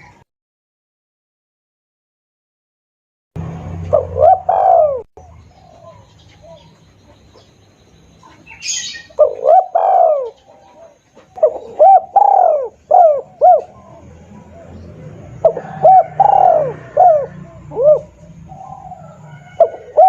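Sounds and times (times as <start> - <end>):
dove cooing: 3.8 - 7.5, 8.2 - 20.0.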